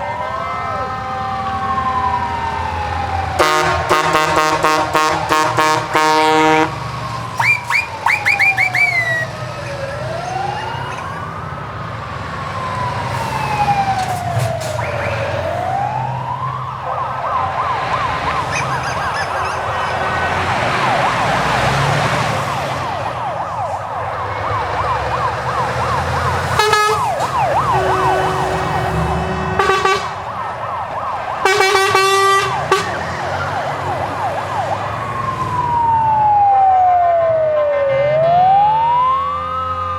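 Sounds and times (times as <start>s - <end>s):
siren wailing and yelping: 0.0s - 39.9s
truck engines rumbling: 0.0s - 39.9s
multi-tone horn blasts: 3.4s - 6.8s, 26.4s - 30.3s, 31.4s - 33.1s.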